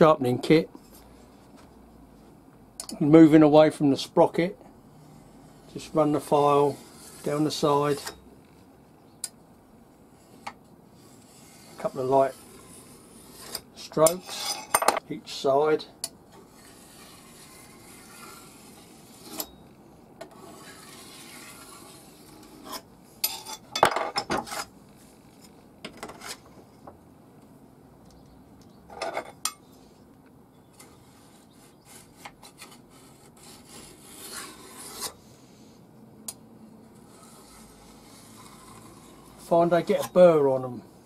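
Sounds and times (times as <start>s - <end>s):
file scraping on steel: 4.9s - 8.2s, 10.1s - 15.0s, 16.3s - 19.6s, 20.2s - 24.7s, 30.8s - 35.2s, 36.8s - 40.4s.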